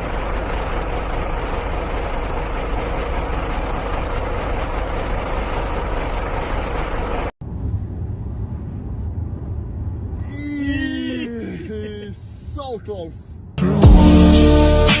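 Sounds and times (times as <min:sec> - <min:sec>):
vehicle engine droning: 0:00.0 - 0:10.2.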